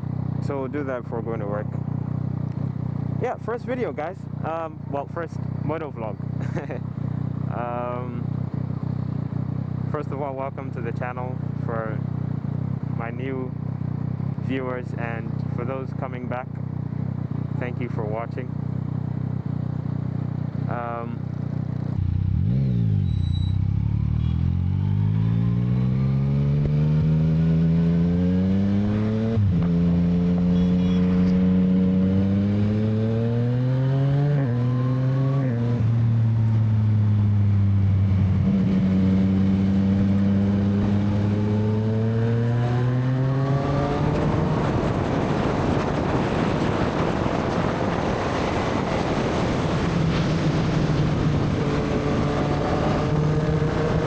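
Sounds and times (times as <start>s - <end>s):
motorcycle engine accelerating: 0.0s - 54.0s
wind noise on microphone: 43.7s - 54.0s.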